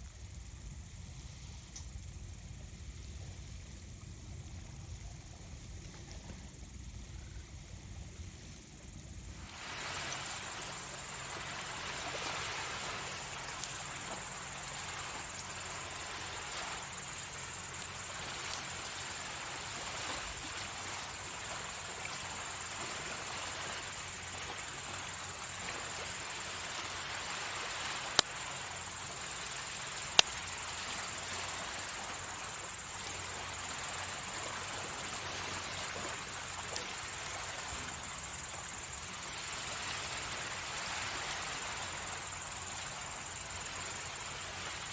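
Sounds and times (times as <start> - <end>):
insects trilling: 0.0 - 44.9
surf hissing on shore: 9.3 - 44.9.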